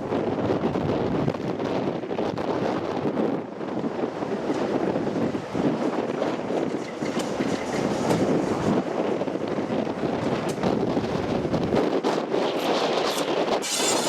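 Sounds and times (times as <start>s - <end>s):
wind on microphone: 0.0s - 14.0s
diesel train moving: 3.4s - 14.0s.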